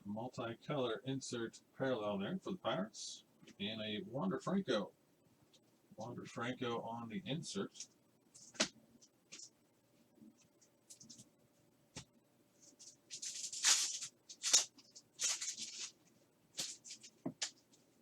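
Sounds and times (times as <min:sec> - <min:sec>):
cards tapping: 0:08.4 - 0:09.5, 0:16.6 - 0:17.6
papery rustles of wrappers: 0:12.6 - 0:17.8.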